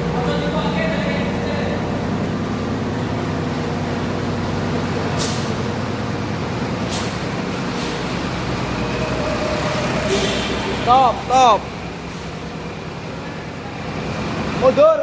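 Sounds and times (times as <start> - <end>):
diesel engine idling: 0.0 - 15.0
air brakes hissing: 5.1 - 5.8, 6.7 - 13.4.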